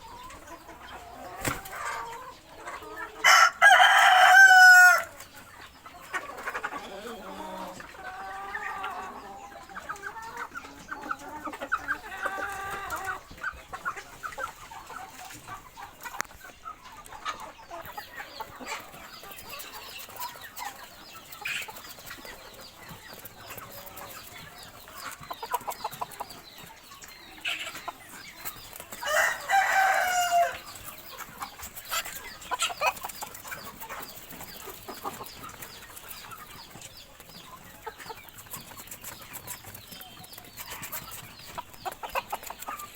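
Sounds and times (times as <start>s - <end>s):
chickens clucking: 0.0s - 42.9s
loud long chicken call: 3.0s - 5.1s, 29.0s - 30.6s.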